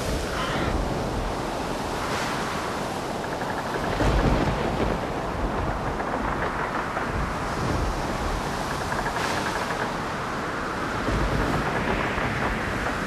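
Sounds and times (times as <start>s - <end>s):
waves: 0.0s - 13.0s
wind: 0.0s - 13.0s.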